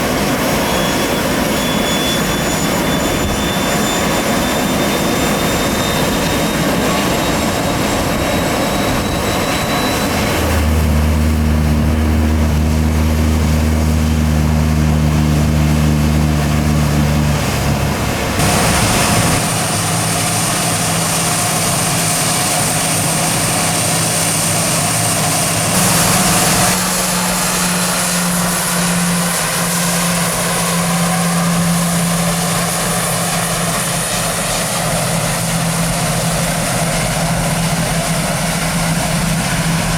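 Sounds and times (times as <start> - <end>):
jet engines whining: 0.0 - 39.9
deep steady hum: 9.5 - 33.6.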